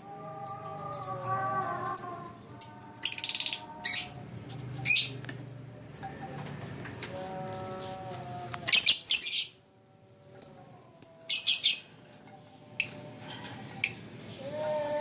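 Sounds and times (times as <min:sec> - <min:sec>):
lovebird buzzy chatter: 0:00.0 - 0:05.2, 0:10.4 - 0:12.0.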